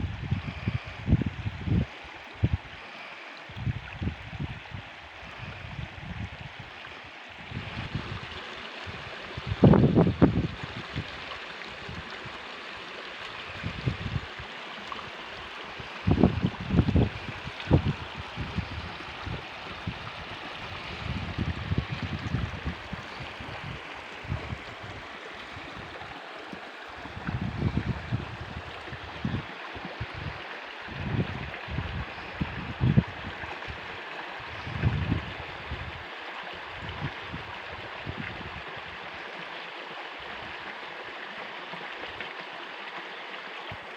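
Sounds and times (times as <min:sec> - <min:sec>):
stream water flowing: 0:00.0 - 0:43.9.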